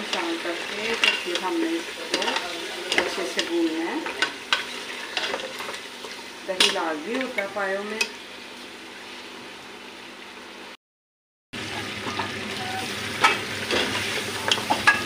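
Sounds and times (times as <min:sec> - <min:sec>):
meat sizzling in oil: 0:00.0 - 0:10.8, 0:11.6 - 0:15.0.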